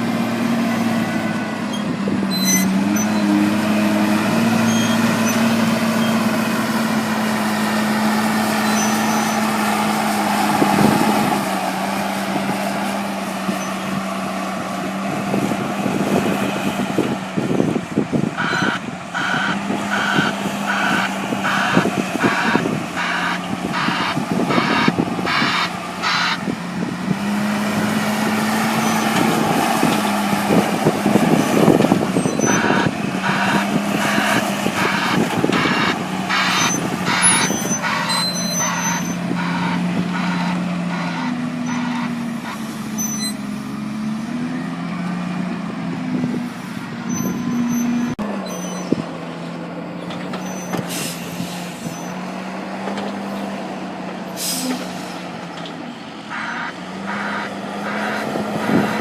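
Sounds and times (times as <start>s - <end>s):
diesel engine revving: 0.0s - 59.0s
reversing alarm beeping: 18.4s - 26.4s, 32.2s - 42.0s, 56.3s - 58.9s.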